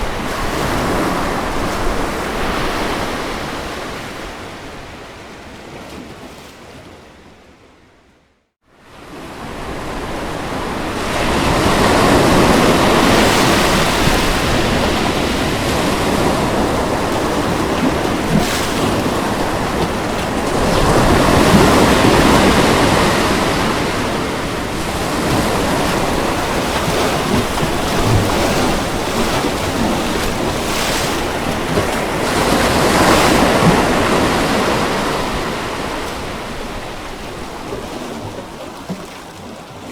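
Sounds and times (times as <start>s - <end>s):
ocean waves breaking on beach: 0.0s - 7.2s, 8.7s - 39.9s.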